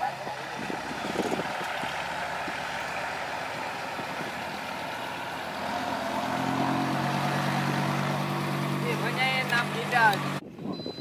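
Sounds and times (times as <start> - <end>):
heavy diesel engine running: 0.0 - 10.4.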